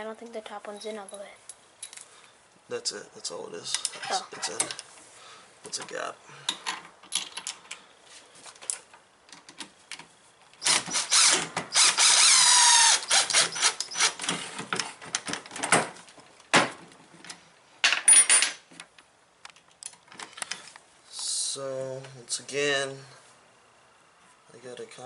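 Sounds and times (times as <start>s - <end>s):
metal parts clicking and clinking: 6.5s - 7.8s.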